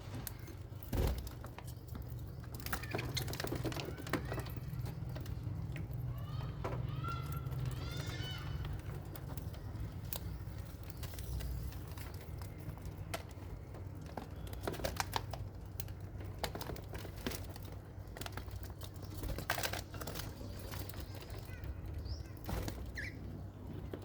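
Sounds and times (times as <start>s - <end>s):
parrots chirping: 20.4s - 23.3s.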